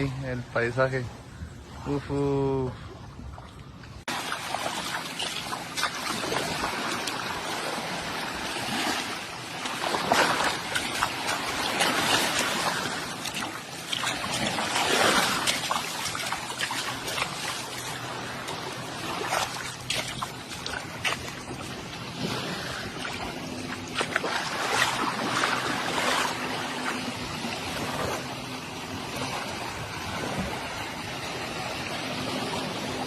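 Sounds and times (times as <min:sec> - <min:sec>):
water washing and splashing: 0:03.4 - 0:33.0
wind on microphone: 0:29.1 - 0:33.0.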